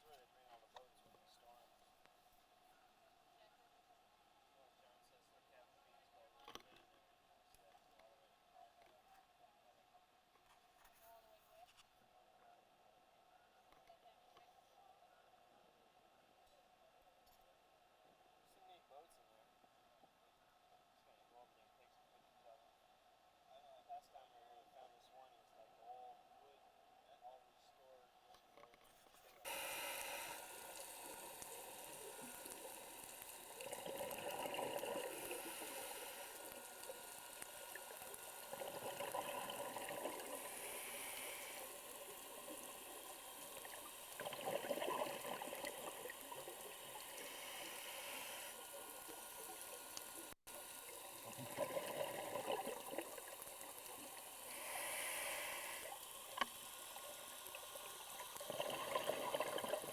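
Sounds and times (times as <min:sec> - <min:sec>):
bubbles gurgling underwater: 0:29.5 - 0:47.8, 0:48.6 - 0:54.4, 0:57.5 - 0:59.9
steady hiss: 0:29.5 - 0:59.9.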